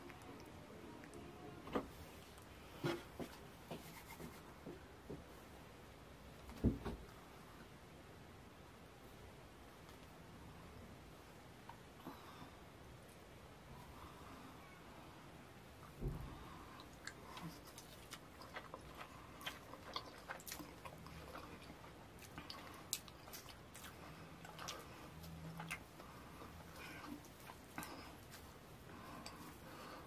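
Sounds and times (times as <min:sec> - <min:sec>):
dull thump: 0:06.6 - 0:07.0
wet sticky chewing: 0:16.8 - 0:26.0.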